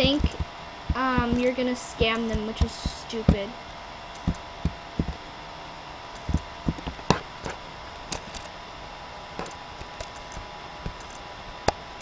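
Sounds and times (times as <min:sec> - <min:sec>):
soft low knocks: 0:00.0 - 0:05.2, 0:06.2 - 0:07.6
faint hum: 0:00.0 - 0:12.0
irregular clicks: 0:04.1 - 0:05.2, 0:06.1 - 0:08.6, 0:09.4 - 0:12.0.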